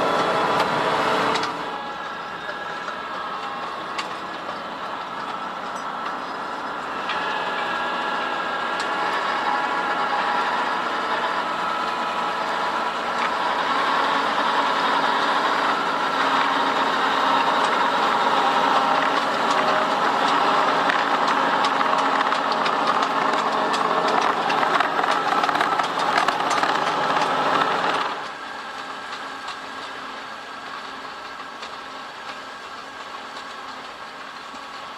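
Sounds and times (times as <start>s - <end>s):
tractor diesel engine running: 0.0s - 34.9s
rattling clatter of implements: 18.8s - 30.0s.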